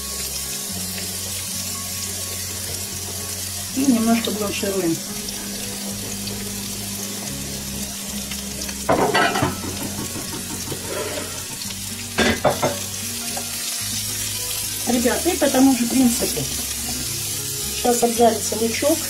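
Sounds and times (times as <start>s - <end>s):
onions sizzling in a frying pan: 0.0s - 19.0s
knock or scrape: 8.9s - 11.7s.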